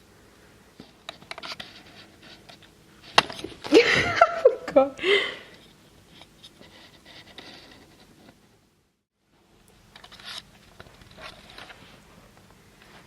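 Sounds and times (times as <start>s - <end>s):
faint scratching: 6.1s - 8.4s.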